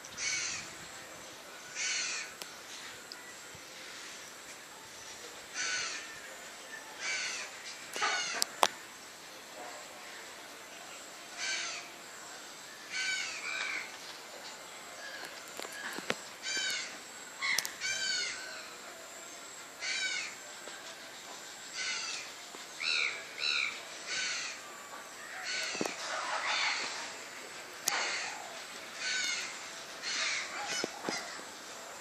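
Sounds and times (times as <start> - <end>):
birds calling: 0.0 - 1.0, 1.7 - 2.6, 7.0 - 8.9, 12.9 - 18.8, 21.7 - 31.8.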